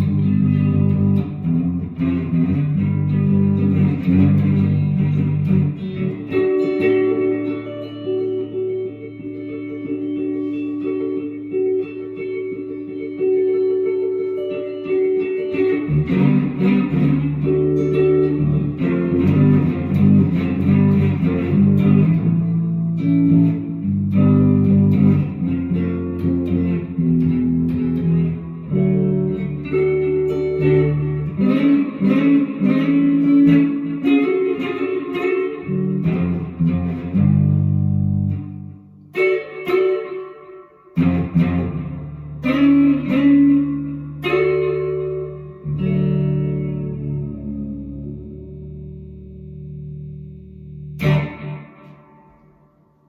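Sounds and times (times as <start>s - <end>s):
plucked guitar music: 0.0s - 53.0s
low bass line: 41.0s - 51.8s.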